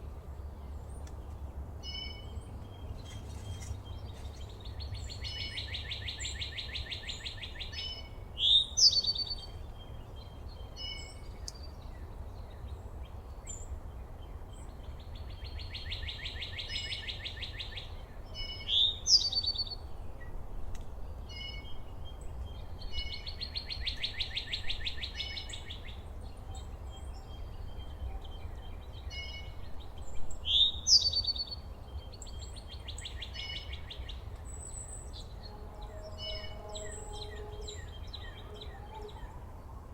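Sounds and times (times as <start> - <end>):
songbird trilling: 5.2 - 9.5, 15.8 - 19.8, 30.4 - 31.6, 34.8 - 39.4.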